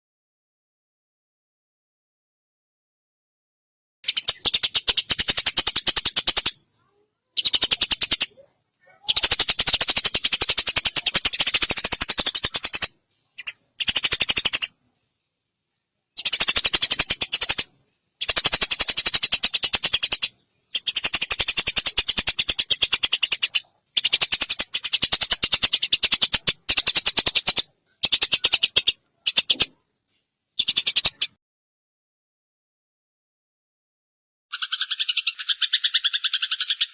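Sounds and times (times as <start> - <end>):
sparrow chattering: 4.0 - 14.8, 16.2 - 29.8, 30.6 - 31.4, 34.5 - 36.9.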